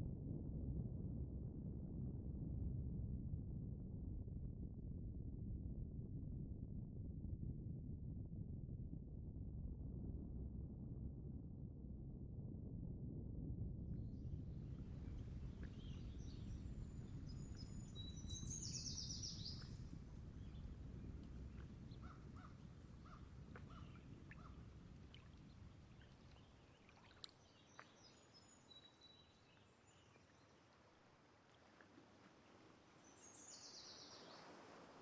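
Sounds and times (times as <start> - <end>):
distant ocean rumble: 13.4 - 27.2
small birds chirping: 15.1 - 30.6.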